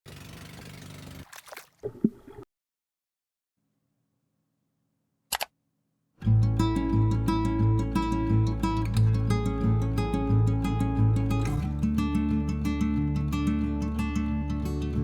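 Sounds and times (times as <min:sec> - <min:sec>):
sharp double click: 0:05.3 - 0:05.5
strummed acoustic guitar music: 0:06.2 - 0:15.0.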